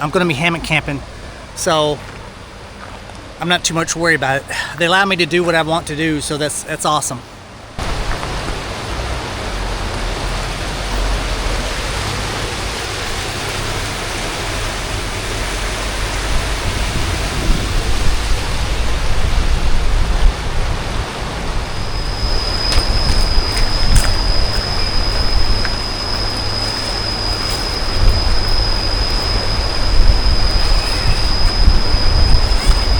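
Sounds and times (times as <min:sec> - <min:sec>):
river rushing: 0:00.0 - 0:32.9
high-pitched tone: 0:21.6 - 0:32.9.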